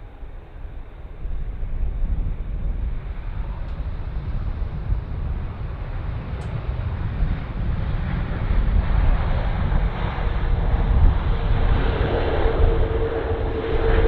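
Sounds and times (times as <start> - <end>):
jet airliner engines rumbling: 0.0 - 14.0
wind buffeting microphone: 0.0 - 14.0.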